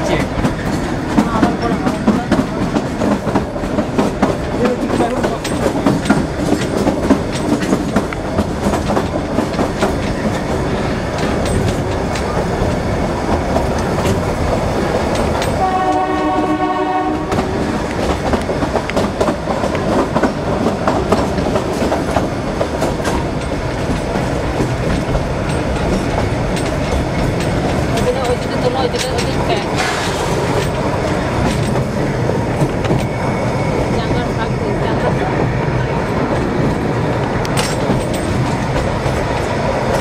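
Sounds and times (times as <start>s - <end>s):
train wheels clattering on rails: 0.0s - 40.0s
train horn: 15.6s - 17.6s.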